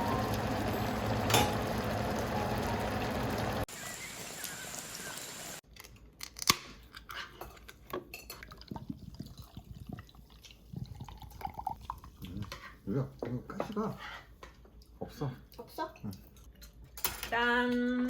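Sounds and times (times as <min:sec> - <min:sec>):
dishes and utensils clinking: 0:01.1 - 0:01.7
steady hiss: 0:03.6 - 0:05.6.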